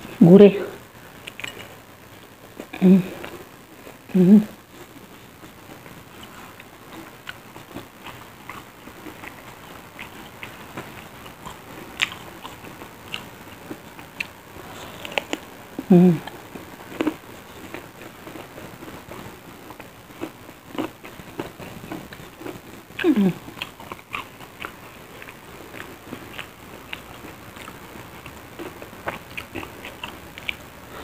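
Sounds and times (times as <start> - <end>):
crunchy chewing clicks: 1.0 - 4.0, 4.7 - 31.0.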